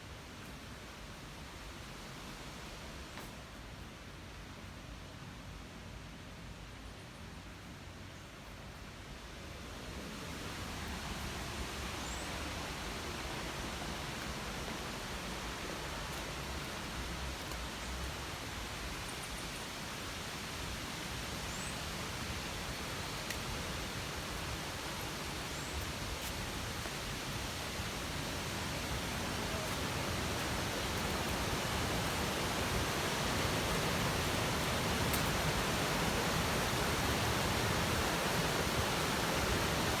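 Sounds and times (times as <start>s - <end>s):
waterfall rushing: 21.9s - 40.0s.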